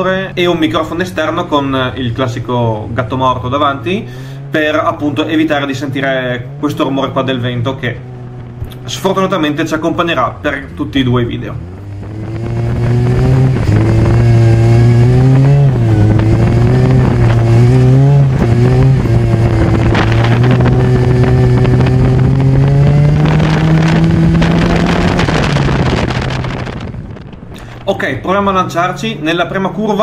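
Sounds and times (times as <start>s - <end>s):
car engine revving: 0.0s - 29.7s
wind buffeting microphone: 7.9s - 28.7s.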